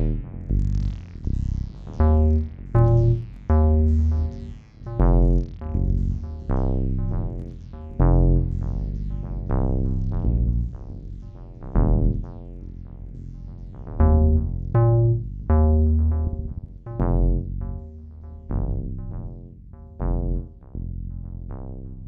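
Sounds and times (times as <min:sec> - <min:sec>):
acid synthesizer line: 0:00.0 - 0:10.7
deep sustained bass notes: 0:00.0 - 0:22.0.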